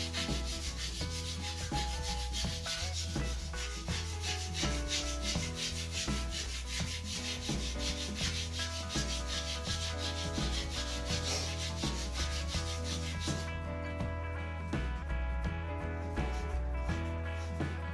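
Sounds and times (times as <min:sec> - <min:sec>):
sandpaper rubbing wood: 0:00.0 - 0:13.6
background music: 0:00.0 - 0:17.9.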